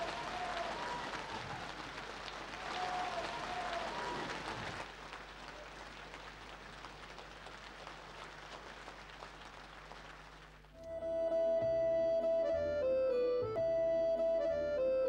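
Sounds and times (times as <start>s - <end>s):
audience applause: 0.0s - 10.7s.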